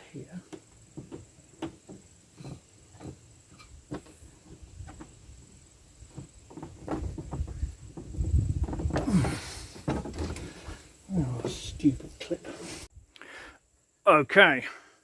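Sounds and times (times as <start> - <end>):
heavy thumps and handling rumble: 0.4 - 12.2.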